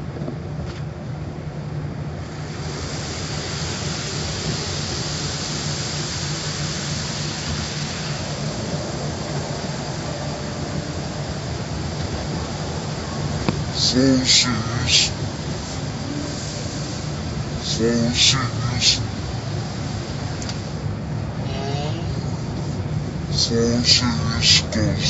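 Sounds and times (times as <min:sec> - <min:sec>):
car wash machinery hum: 0:00.0 - 0:25.0
rushing hiss of water: 0:02.2 - 0:25.0.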